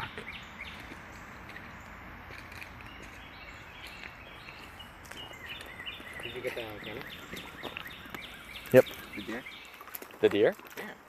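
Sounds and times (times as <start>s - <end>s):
bird chirping: 0.0s - 10.5s
outdoor background noise: 0.0s - 11.0s.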